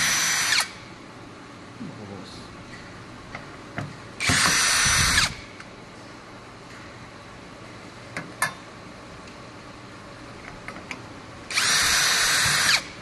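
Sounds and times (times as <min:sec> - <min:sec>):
power drill running: 0:00.0 - 0:00.8, 0:04.2 - 0:05.5, 0:11.5 - 0:13.0.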